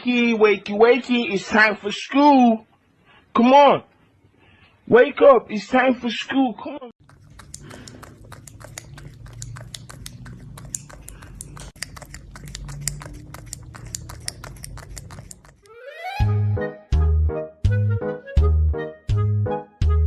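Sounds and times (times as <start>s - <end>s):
pet chewing crunches: 7.0s - 15.7s.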